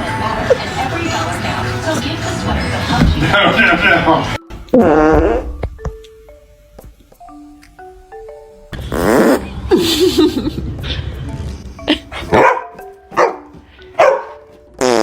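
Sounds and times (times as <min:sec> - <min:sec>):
light background music: 0:00.0 - 0:15.0
dog barking: 0:12.3 - 0:14.4.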